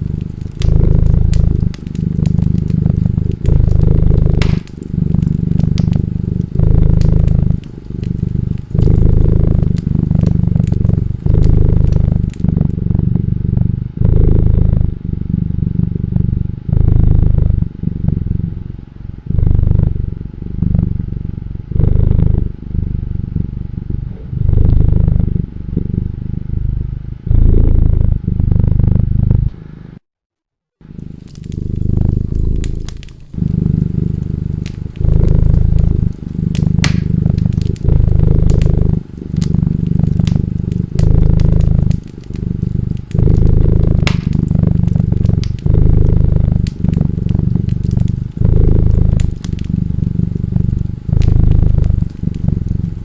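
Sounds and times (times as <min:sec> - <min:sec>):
wood fire crackling and popping: 0:00.0 - 0:12.8, 0:30.9 - 0:53.0
cat purring: 0:00.0 - 0:30.0, 0:30.8 - 0:53.0.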